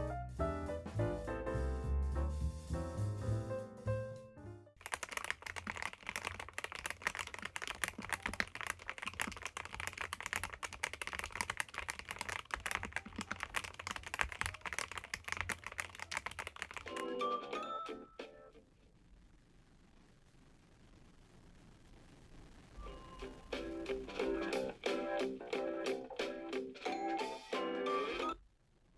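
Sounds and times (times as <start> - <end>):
music: 0.0 - 4.8, 16.9 - 18.6, 22.8 - 28.4
fast typing on mechanical keyboard: 4.8 - 17.2.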